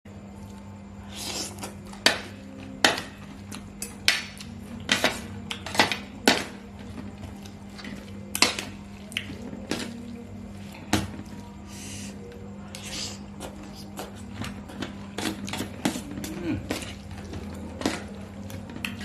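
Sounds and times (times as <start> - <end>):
steady low hum: 0.1 - 19.0.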